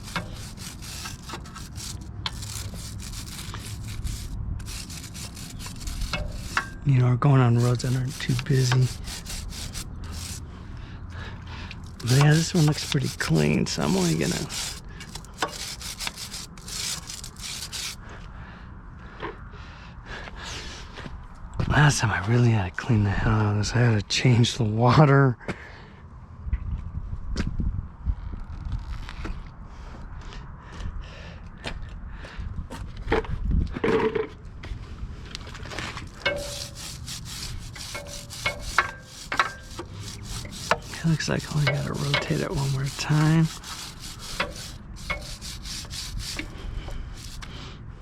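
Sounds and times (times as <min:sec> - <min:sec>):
brush scrubbing a chain: 0:00.0 - 0:06.8, 0:07.5 - 0:10.4, 0:11.8 - 0:18.0, 0:36.1 - 0:47.5.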